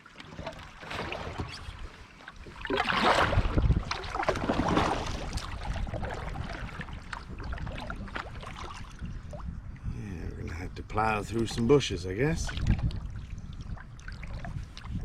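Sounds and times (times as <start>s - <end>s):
water splashing: 0.0s - 9.5s.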